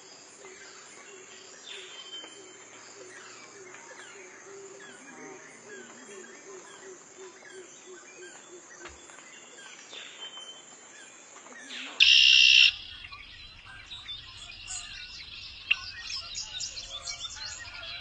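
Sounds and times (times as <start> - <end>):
birds chirping: 7.5 - 18.0
high insect drone: 12.0 - 18.0
low repeated bird notes: 12.0 - 18.0.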